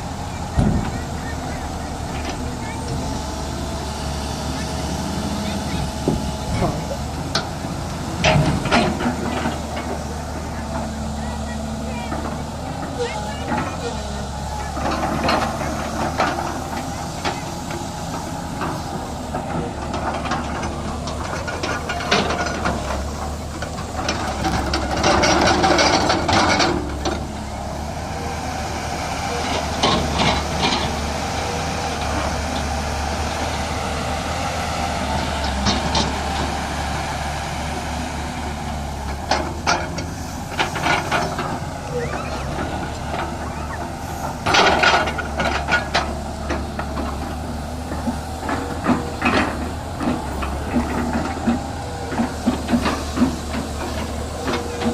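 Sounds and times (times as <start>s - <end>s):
heavy diesel machinery running: 0.0s - 54.9s
people's voices: 0.0s - 54.9s.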